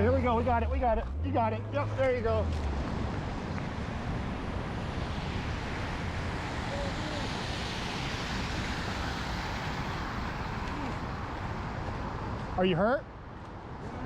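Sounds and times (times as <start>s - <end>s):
traffic hum: 0.0s - 14.0s.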